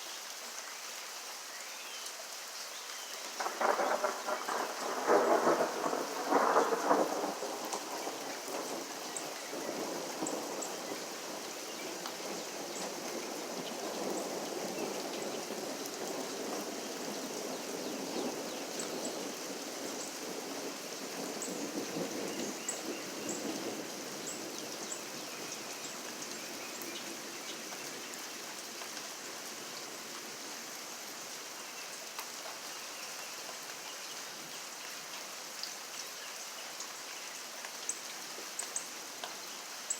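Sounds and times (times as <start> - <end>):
steady rain: 0.0 - 39.9
thunder clap and rumble: 3.4 - 11.4.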